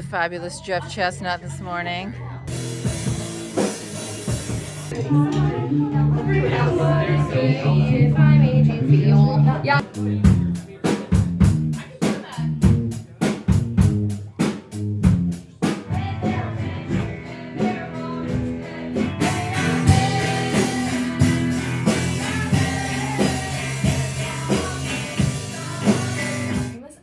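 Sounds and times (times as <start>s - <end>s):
bass guitar: 0.0s - 26.8s
drums: 2.4s - 7.3s, 8.0s - 26.8s
person singing: 5.0s - 9.8s, 15.9s - 26.8s
electric guitar: 16.0s - 26.8s.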